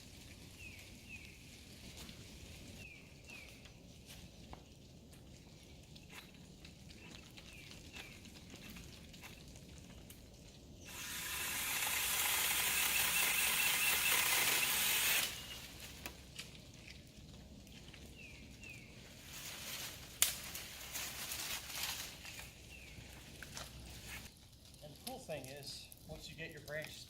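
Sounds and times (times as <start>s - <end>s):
electric pole saw cutting branch: 10.9s - 15.8s.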